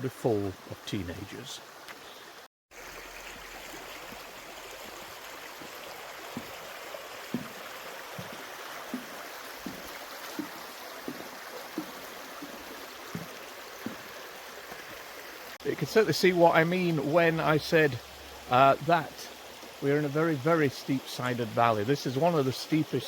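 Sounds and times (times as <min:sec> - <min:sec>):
stream running over rocks: 0:00.0 - 0:23.0
footsteps on a path: 0:05.6 - 0:14.8.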